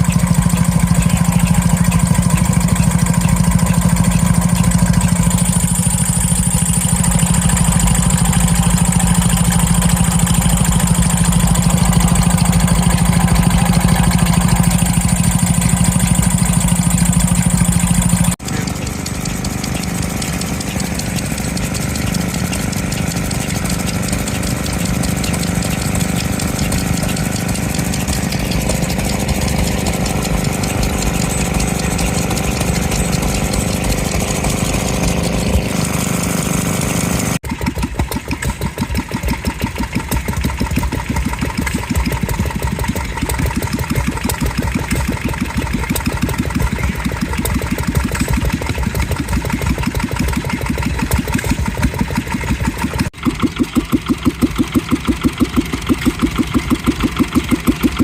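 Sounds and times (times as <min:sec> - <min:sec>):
engine with fast even beat: 0:00.0 - 0:58.0
stationary engines running: 0:00.0 - 0:58.0.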